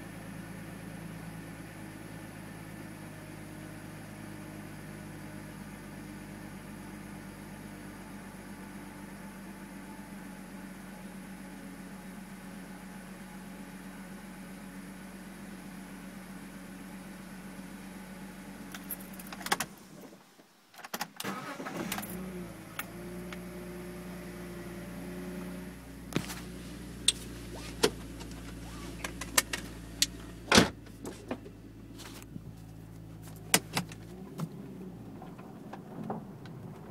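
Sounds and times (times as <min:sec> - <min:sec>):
car engine idling roughly: 0:26.0 - 0:34.1.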